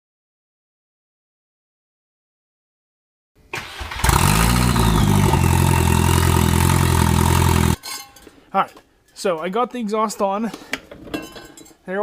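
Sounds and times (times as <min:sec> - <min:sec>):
car engine starting and idling: 0:03.5 - 0:07.8.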